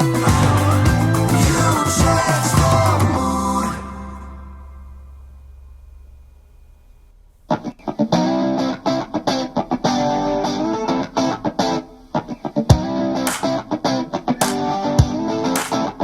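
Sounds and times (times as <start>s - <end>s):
strummed electric guitar chords: 0.0s - 5.8s, 7.5s - 16.0s
faint low hum: 3.1s - 7.8s.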